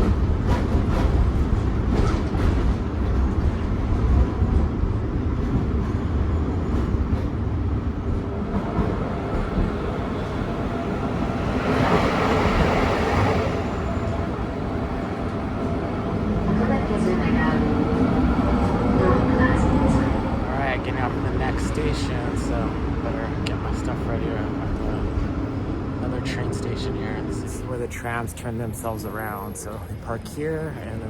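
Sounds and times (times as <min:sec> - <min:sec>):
tram rumbling on rails: 0:00.0 - 0:31.0.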